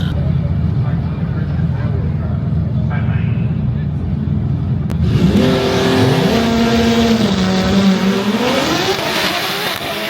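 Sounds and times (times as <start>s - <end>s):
drag race car engine accelerating: 3.8s - 10.0s.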